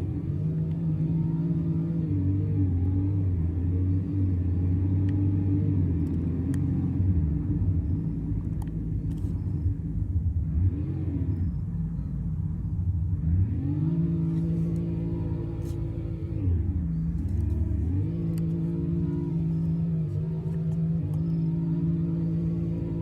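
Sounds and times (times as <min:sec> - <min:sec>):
truck engine revving: 0:00.0 - 0:12.0, 0:13.2 - 0:23.0.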